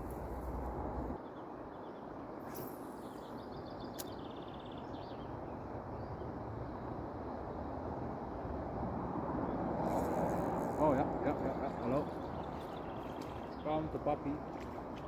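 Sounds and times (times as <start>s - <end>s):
sharp click: 4.0s - 4.2s.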